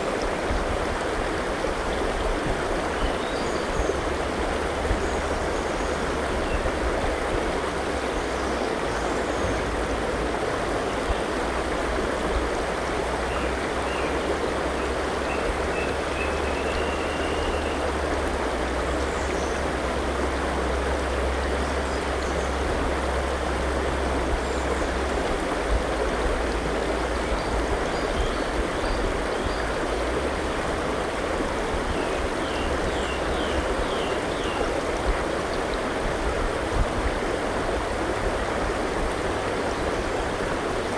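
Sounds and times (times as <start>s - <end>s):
river water rushing: 0.0s - 40.9s
faint birdsong chirps: 2.9s - 6.8s, 13.2s - 18.2s, 26.5s - 36.0s.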